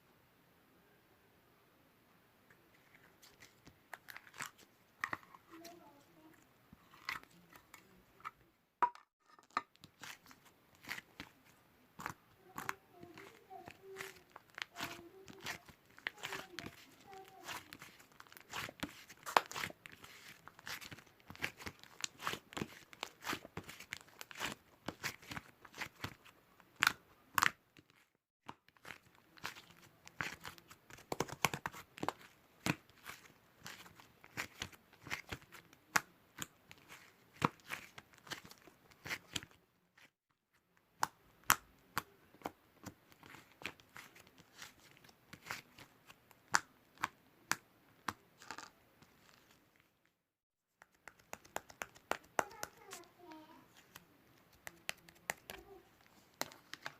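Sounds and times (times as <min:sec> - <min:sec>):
crinkling and tearing: 0:09.3 - 0:28.1.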